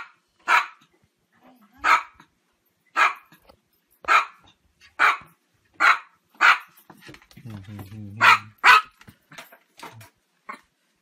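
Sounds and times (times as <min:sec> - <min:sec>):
small dog barking: 0:00.0 - 0:00.9, 0:01.8 - 0:02.3, 0:02.9 - 0:03.3, 0:04.0 - 0:04.4, 0:05.0 - 0:06.7, 0:08.2 - 0:09.0.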